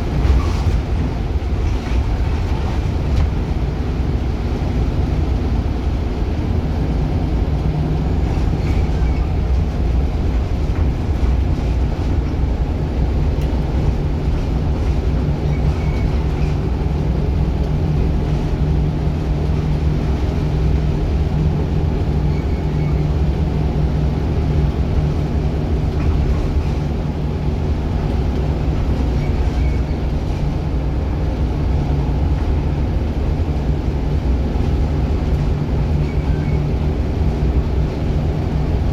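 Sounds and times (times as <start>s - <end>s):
bus engine running: 0.0s - 38.9s.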